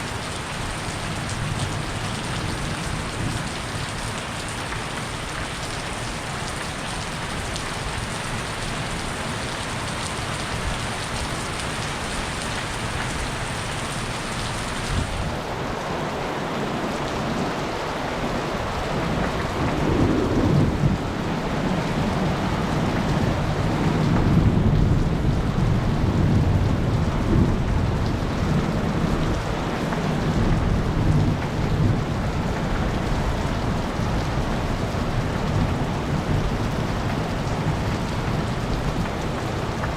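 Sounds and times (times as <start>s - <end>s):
heavy rain falling: 0.0s - 39.9s
rolling thunder: 19.0s - 29.6s.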